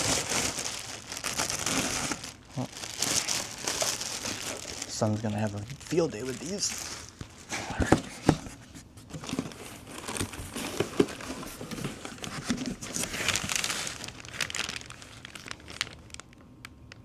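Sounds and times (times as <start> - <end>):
packaging crinkling: 0.0 - 17.0.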